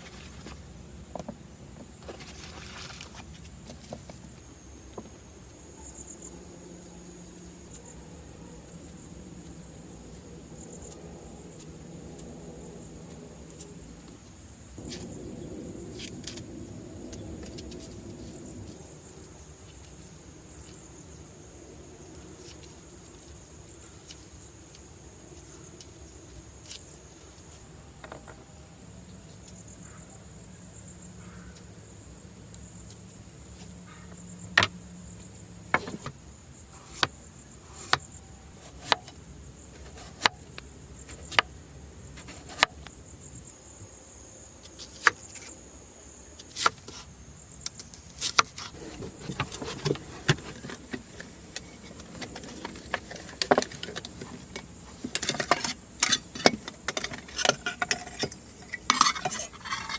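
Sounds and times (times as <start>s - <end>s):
high insect chorus: 0.0s - 59.9s.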